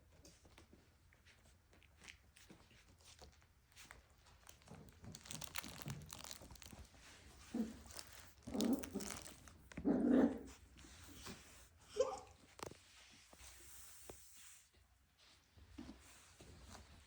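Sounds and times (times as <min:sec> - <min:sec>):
scratchy rustling: 0:03.8 - 0:11.8.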